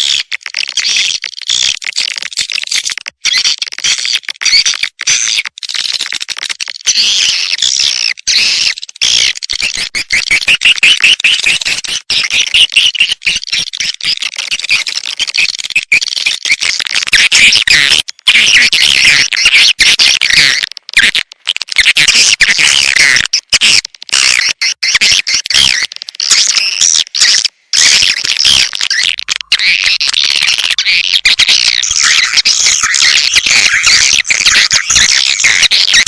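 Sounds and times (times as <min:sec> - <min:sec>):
swiftlets chirping and twittering: 0:25.6 - 0:36.0.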